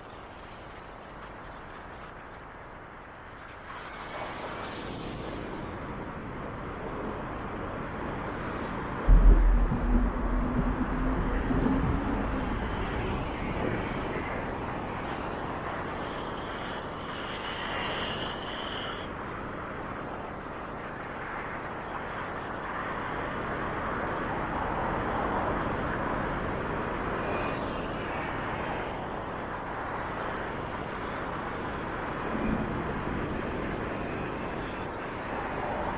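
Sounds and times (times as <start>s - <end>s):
city road traffic: 4.3s - 35.9s
high steady squeal: 9.1s - 13.6s
heavy vehicle rumbling past: 9.1s - 14.1s.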